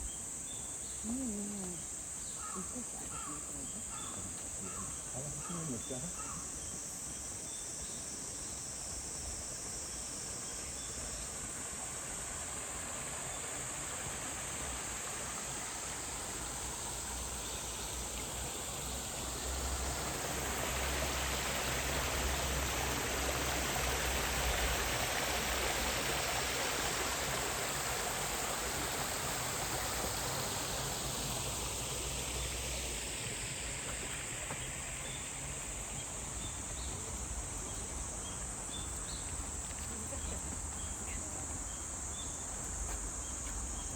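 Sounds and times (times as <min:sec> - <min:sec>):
high drone of insects: 0:00.0 - 0:43.9
stream running water: 0:00.0 - 0:43.9.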